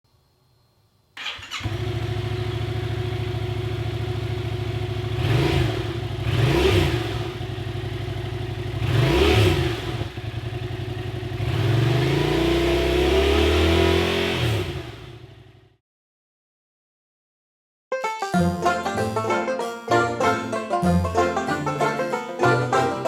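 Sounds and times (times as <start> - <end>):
motorcycle engine starting and revving: 1.2 - 15.8.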